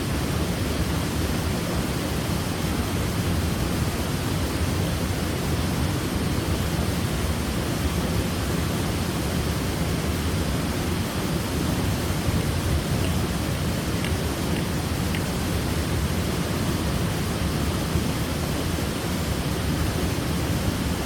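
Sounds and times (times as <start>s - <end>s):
waterfall rushing: 10.6s - 21.0s.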